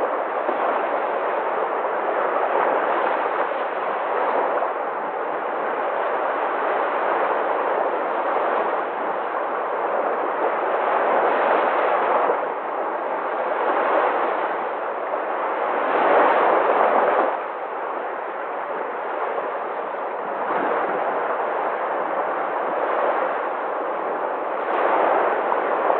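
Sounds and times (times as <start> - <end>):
sea waves breaking: 0.0 - 25.9.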